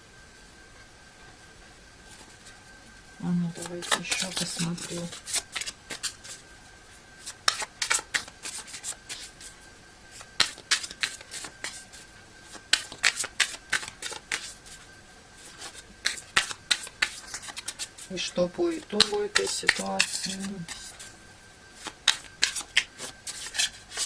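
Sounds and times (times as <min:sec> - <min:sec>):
cards being shuffled: 0:03.5 - 0:06.4, 0:07.2 - 0:09.5, 0:10.2 - 0:14.8, 0:15.4 - 0:21.2, 0:21.8 - 0:24.0.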